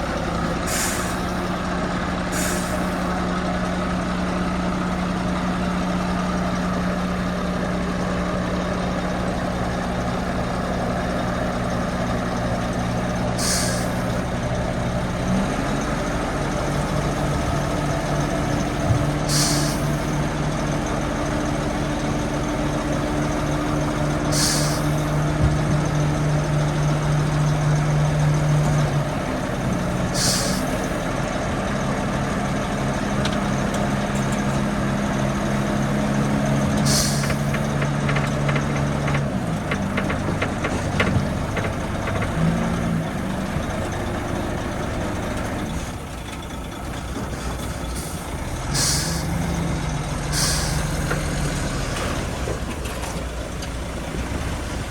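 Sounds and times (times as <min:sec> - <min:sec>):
diesel machinery engine running: 0:00.0 - 0:54.9
air brake hisses: 0:00.7 - 0:01.5, 0:02.3 - 0:03.1, 0:13.4 - 0:14.2, 0:19.3 - 0:20.1, 0:24.3 - 0:25.2, 0:30.2 - 0:31.0, 0:36.8 - 0:37.5, 0:48.0 - 0:49.3, 0:50.3 - 0:51.1.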